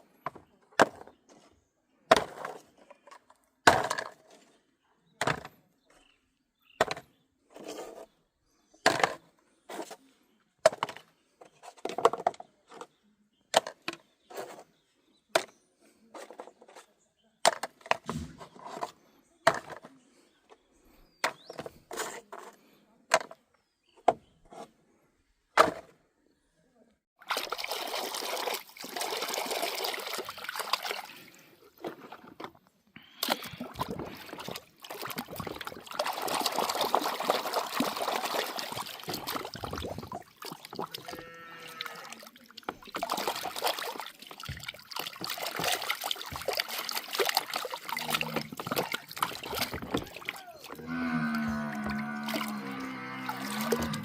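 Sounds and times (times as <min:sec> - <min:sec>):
water sloshing and splashing: 0:27.2 - 0:54.0.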